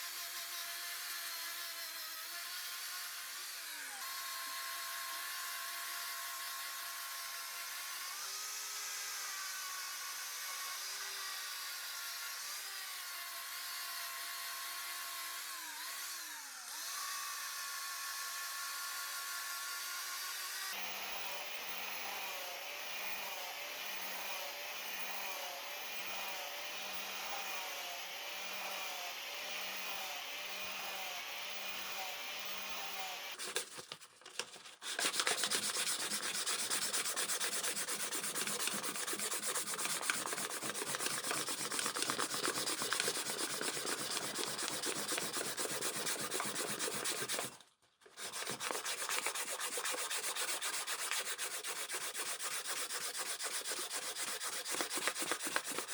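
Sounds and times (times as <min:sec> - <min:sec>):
scraping like sanding: 0:33.4 - 0:55.9.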